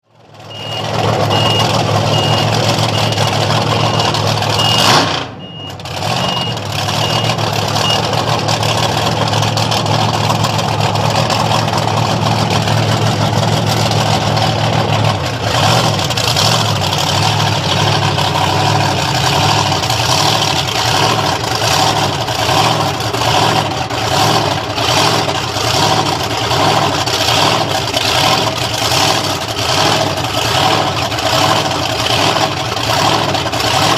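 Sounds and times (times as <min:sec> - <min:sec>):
heavy vehicle engine running: 0:00.0 - 0:33.9
reversing alarm beeping: 0:00.4 - 0:08.1.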